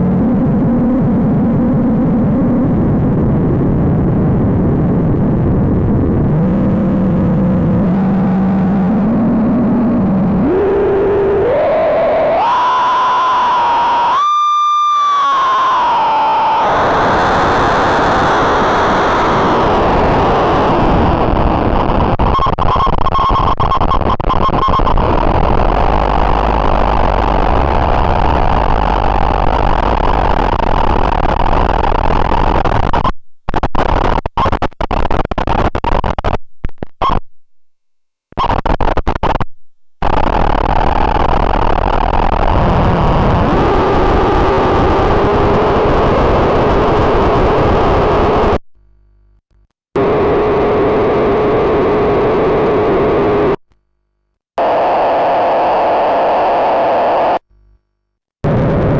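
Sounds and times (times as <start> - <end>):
harsh distorted buzzing drone: 15.2 - 22.3, 25.0 - 36.3, 50.0 - 53.6, 54.6 - 57.4.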